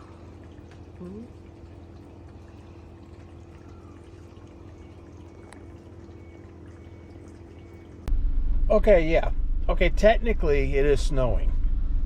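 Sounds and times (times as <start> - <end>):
faint drips: 0.0 - 8.1
low steady hum: 0.0 - 12.0.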